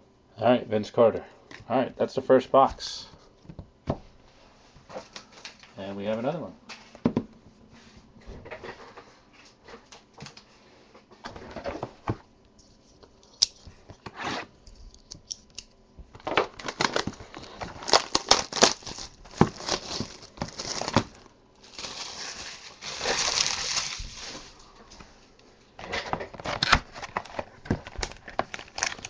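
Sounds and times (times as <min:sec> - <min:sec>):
plastic wrapping crinkling: 0:16.2 - 0:24.9, 0:26.5 - 0:29.0
handling of cardboard box: 0:16.8 - 0:24.6.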